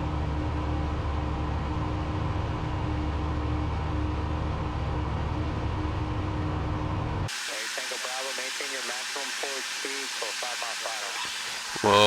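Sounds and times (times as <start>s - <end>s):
faint steady hum: 7.4s - 12.0s.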